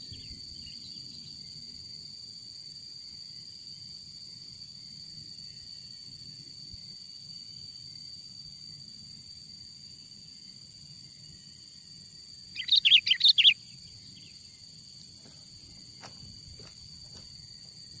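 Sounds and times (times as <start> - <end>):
high insect drone: 0.0 - 18.0
bulbul calling: 12.5 - 14.4.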